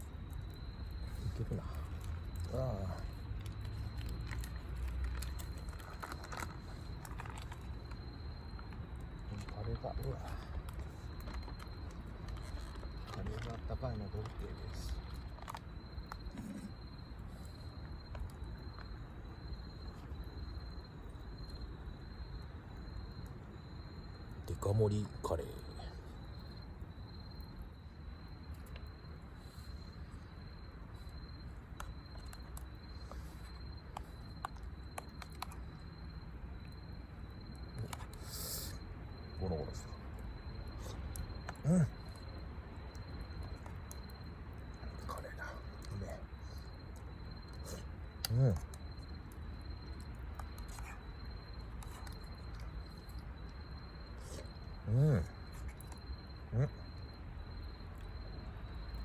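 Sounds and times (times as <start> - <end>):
crickets trilling: 0.0 - 59.0
insects chirping: 0.0 - 59.0
background hiss: 37.8 - 38.8.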